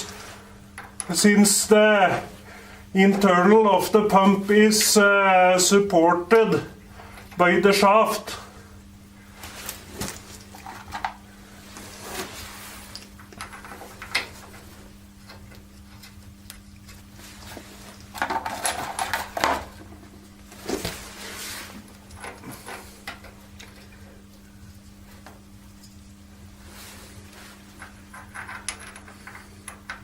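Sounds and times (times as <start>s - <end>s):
faint steady hum: 0.0s - 30.0s
metal tools clinking and knocking: 27.8s - 30.0s.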